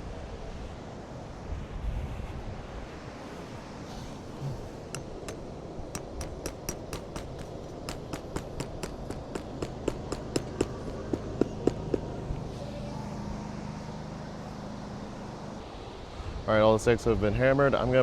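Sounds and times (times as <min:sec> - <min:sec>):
wind blowing: 0:00.7 - 0:12.6
hatchet hammering tent stakes: 0:04.8 - 0:12.3.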